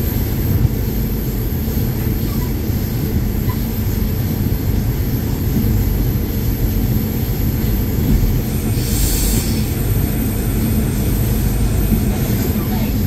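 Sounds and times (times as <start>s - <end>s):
train rumbling on track: 0.0s - 13.0s
short hiss: 8.7s - 9.8s.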